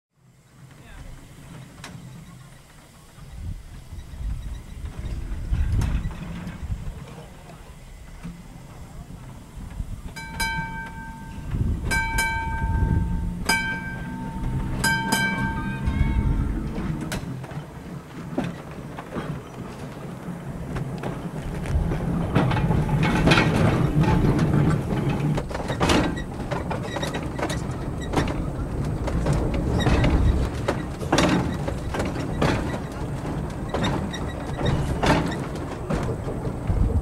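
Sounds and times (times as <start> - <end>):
streetcar rumbling on track: 0.2 - 37.0
clacks and knocks: 10.1 - 37.0.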